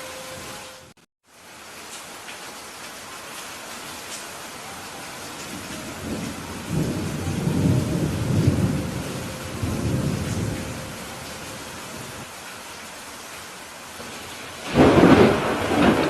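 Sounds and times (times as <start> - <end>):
rain hissing: 0.0 - 16.0
thunder rolling: 5.5 - 12.2, 14.1 - 16.0.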